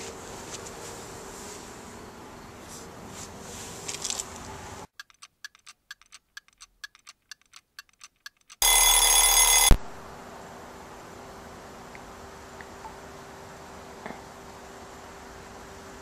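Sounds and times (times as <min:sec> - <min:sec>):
rustling: 0:02.6 - 0:04.5
clock ticking: 0:04.9 - 0:09.8
loud alarm ringing: 0:08.6 - 0:10.0.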